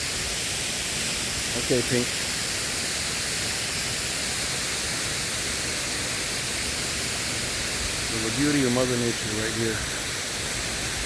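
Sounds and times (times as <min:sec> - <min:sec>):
water rushing through dam gates: 0:00.0 - 0:11.0.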